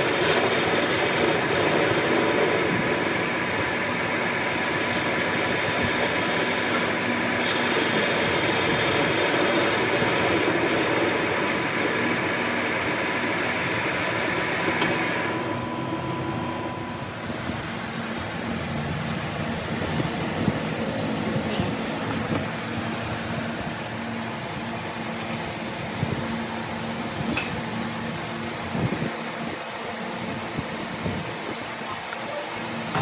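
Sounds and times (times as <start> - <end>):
metal lathe running: 0.0 - 31.8
hissing squealing metal cutting: 5.0 - 12.6.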